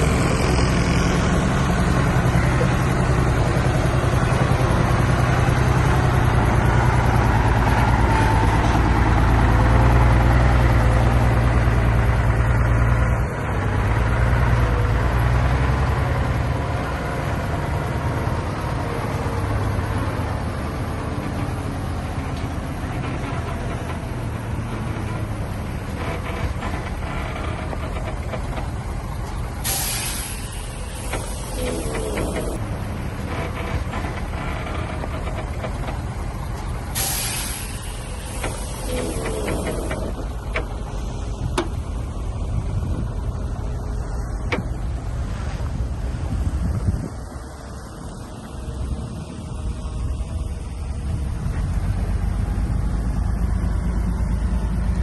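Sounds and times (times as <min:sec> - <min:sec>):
bulldozer diesel engine droning: 0:00.0 - 0:55.0.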